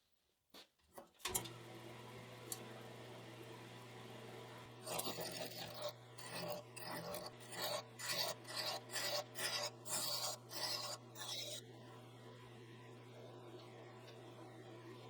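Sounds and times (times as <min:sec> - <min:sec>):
rasping abrasive strokes on wood: 0:04.9 - 0:11.6.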